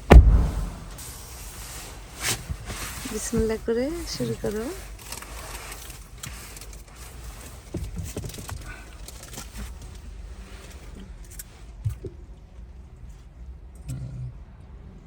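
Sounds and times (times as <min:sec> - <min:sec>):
low car cabin rumble: 0:00.0 - 0:01.0
light knocks and rustles: 0:02.2 - 0:04.7.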